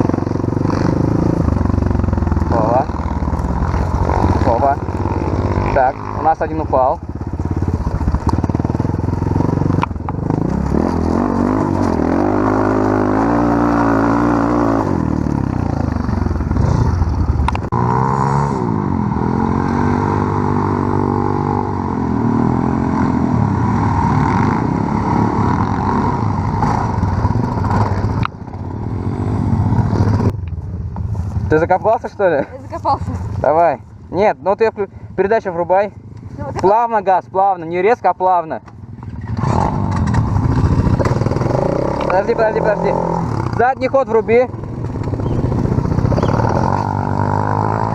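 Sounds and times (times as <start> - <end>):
small engine revving: 39.1 - 43.6, 45.0 - 47.9.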